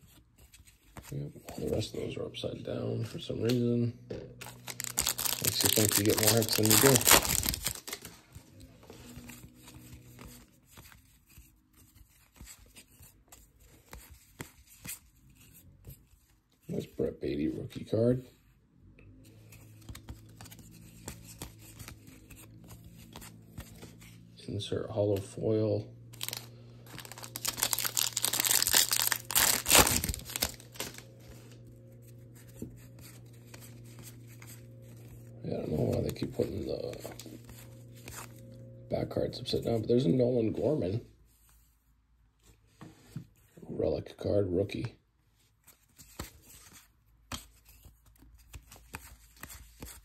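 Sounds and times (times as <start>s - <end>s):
faint low hum: 0.0s - 42.7s
trading cards flipped through: 4.3s - 16.3s, 19.3s - 24.2s, 26.1s - 38.5s, 45.7s - 50.0s
plastic wrapper tearing and crinkling: 4.4s - 8.2s, 26.2s - 31.2s.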